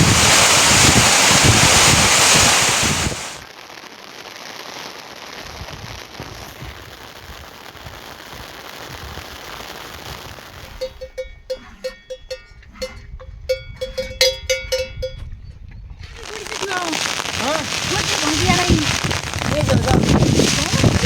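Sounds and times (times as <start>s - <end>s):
rain hissing: 0.0s - 11.0s, 16.1s - 21.0s
metal livestock bell clanking: 10.8s - 15.5s.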